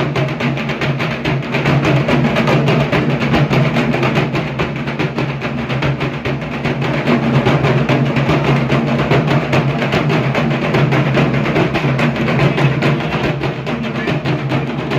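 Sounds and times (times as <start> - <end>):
barrel drum beaten with sticks: 0.0 - 14.9.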